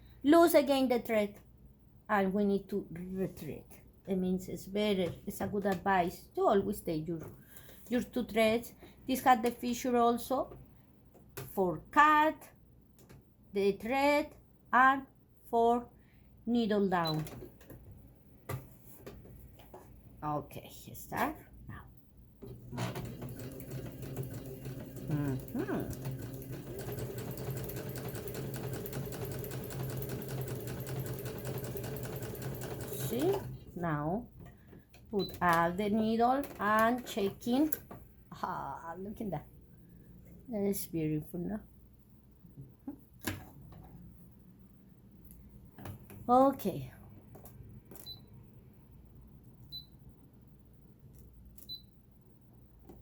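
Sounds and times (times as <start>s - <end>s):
sewing machine running: 22.4s - 33.6s.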